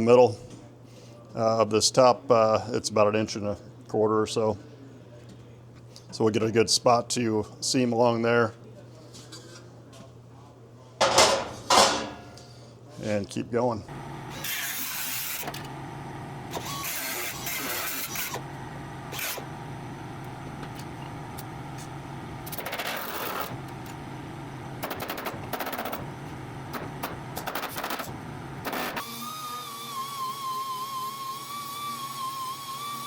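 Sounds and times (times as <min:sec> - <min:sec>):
power tool cutting sheet metal: 0:13.9 - 0:24.0, 0:24.8 - 0:33.0.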